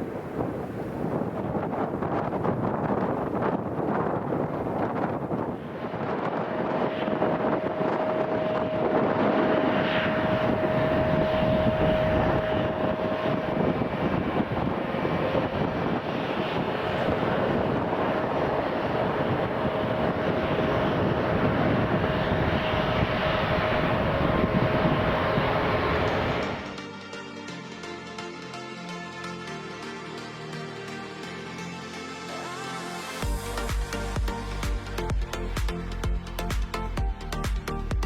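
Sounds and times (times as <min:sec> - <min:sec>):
jet engine rumble: 0:00.0 - 0:27.0
jet engine whine: 0:00.0 - 0:37.7.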